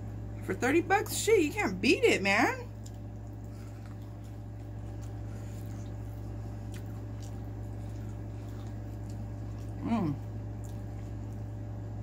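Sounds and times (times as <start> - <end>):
low hum: 0.0 - 12.0
mouth clicks and soft chewing: 2.7 - 11.6.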